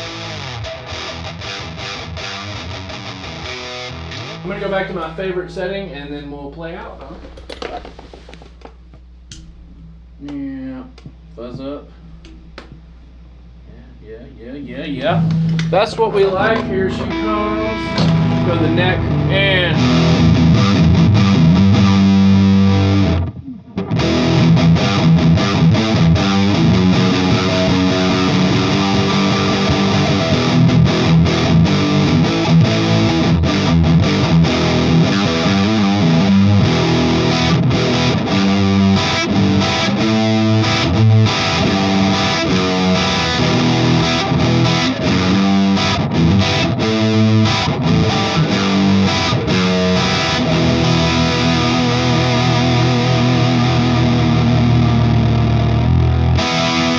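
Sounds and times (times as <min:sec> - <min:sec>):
fuzz-distorted electric guitar: 0:00.0 - 0:05.6, 0:09.3 - 0:56.9.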